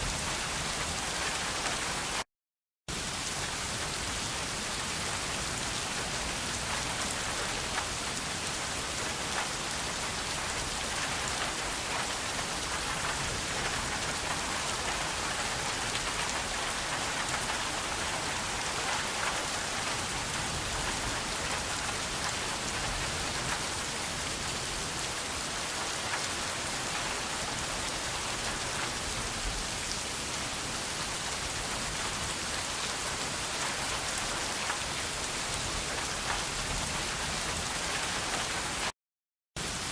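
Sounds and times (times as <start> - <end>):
steady rain falling: 0.0 - 2.2, 2.9 - 39.0, 39.6 - 39.9
individual raindrop ticks: 9.3 - 9.7, 33.5 - 35.0, 35.8 - 38.9.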